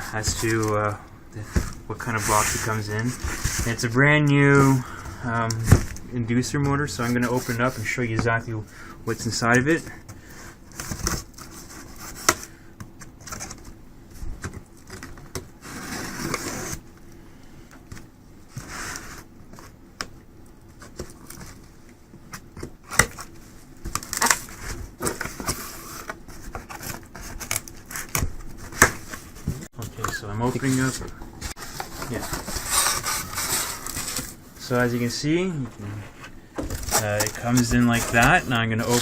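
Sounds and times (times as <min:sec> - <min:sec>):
cardboard scraping and rustling: 0:00.0 - 0:06.0, 0:14.4 - 0:16.8, 0:22.5 - 0:39.0.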